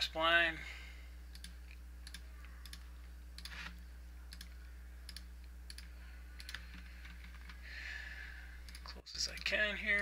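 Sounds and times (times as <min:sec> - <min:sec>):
low electrical hum: 0:00.0 - 0:10.0
computer mouse clicks: 0:01.3 - 0:07.6, 0:08.6 - 0:10.0.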